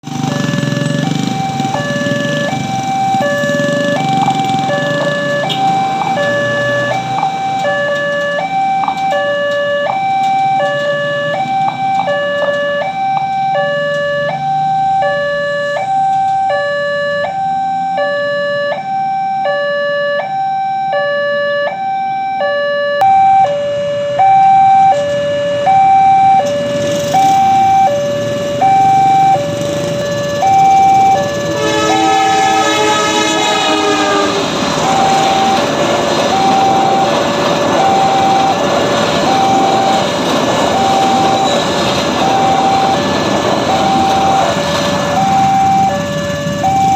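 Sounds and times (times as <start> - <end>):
level crossing two-tone alarm: 0.2 - 46.9
train horn: 31.4 - 35.3.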